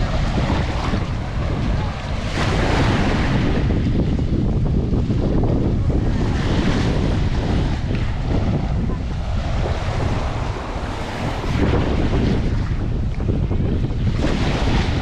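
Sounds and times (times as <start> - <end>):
surf washing onto a beach: 0.0 - 15.0
wind buffeting the microphone: 0.0 - 15.0.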